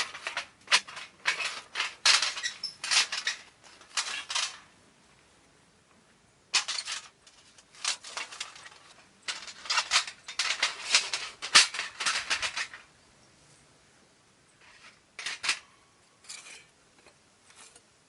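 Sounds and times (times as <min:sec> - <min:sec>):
camp gear rustling and clicking: 0:00.0 - 0:04.7, 0:06.5 - 0:12.9.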